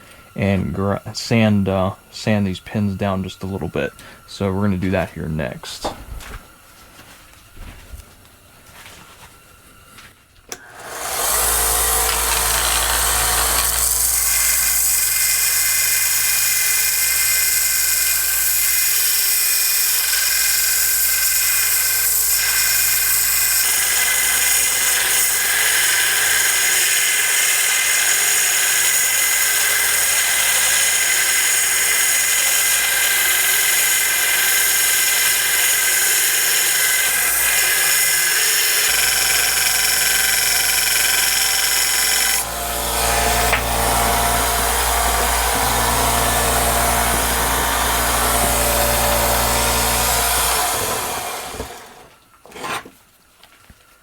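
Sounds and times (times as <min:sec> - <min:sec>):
power tool sanding steel: 0:10.5 - 0:52.1.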